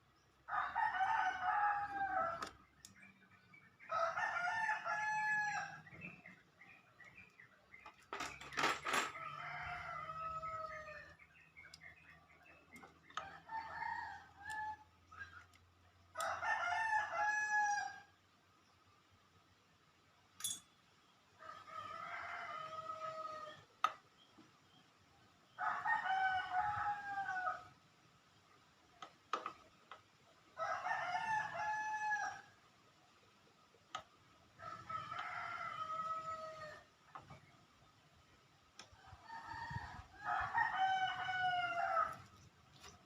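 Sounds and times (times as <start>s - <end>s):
rooster crowing: 0.5s - 2.5s, 3.9s - 5.8s, 9.2s - 11.2s, 16.2s - 18.1s, 21.4s - 23.6s, 25.6s - 27.7s, 30.6s - 32.5s, 34.6s - 36.8s, 39.2s - 42.4s.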